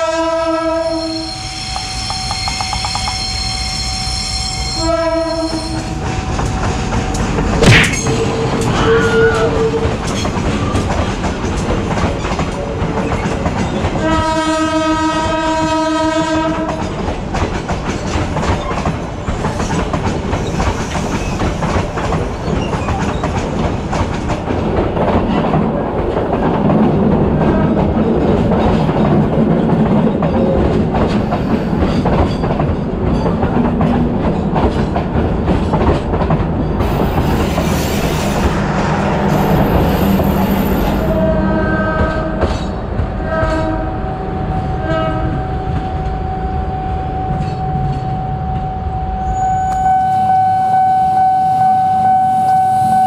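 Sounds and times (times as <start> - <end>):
locomotive horn: 0.0 - 6.1, 8.2 - 10.0, 14.0 - 16.8, 38.0 - 47.3, 49.1 - 53.0
train wheels clacking over rail joints: 5.7 - 41.2, 41.9 - 43.8
sharp metal clank: 7.6 - 8.4.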